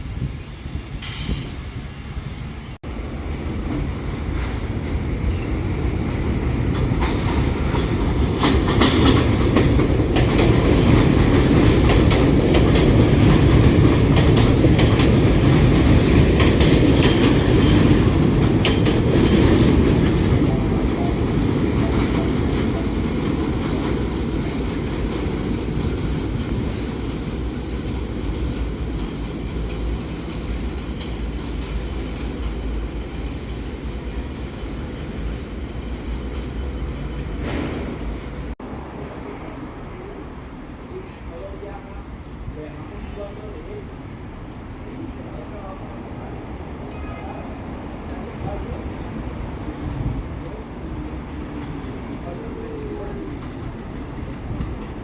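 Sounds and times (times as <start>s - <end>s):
subway train rumbling: 0.0s - 55.0s
wheels clicking over rail joints: 6.6s - 20.7s.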